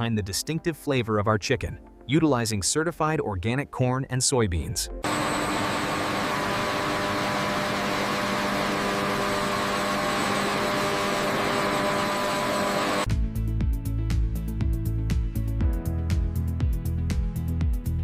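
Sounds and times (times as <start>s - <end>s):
music: 0.0s - 5.1s, 13.0s - 18.0s
mechanical rushing noise with hum: 5.0s - 13.1s.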